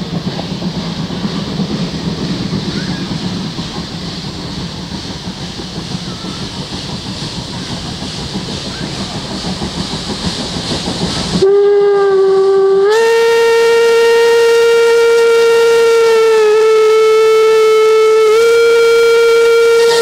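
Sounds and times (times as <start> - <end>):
train rumbling on track: 0.0 - 20.0
locomotive whistle: 11.3 - 20.0.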